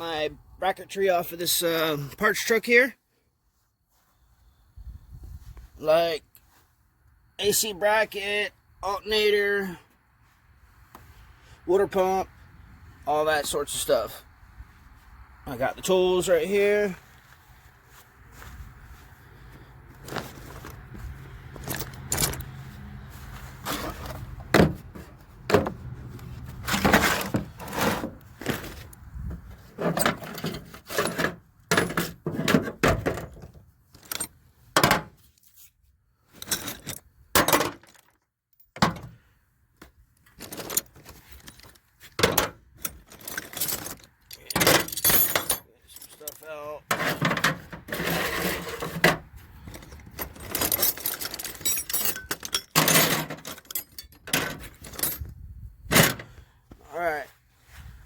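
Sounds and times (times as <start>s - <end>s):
metal hand tools clinking: 42.9s - 46.6s, 49.8s - 55.3s.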